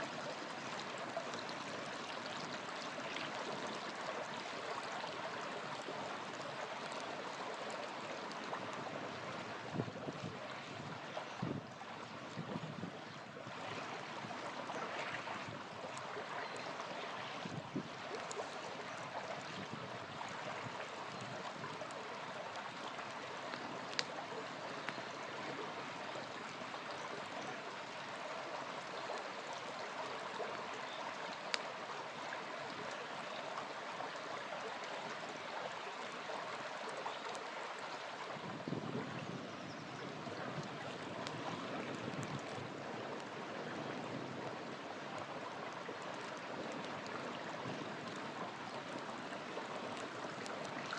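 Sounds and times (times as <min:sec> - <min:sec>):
small river flowing: 0:00.0 - 0:50.9
campfire popping: 0:15.8 - 0:26.4, 0:40.6 - 0:43.7, 0:45.9 - 0:50.9.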